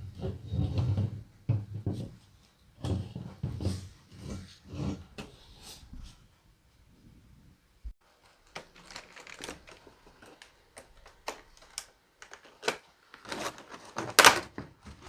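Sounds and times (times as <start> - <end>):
hard objects clacking together: 8.3 - 14.6.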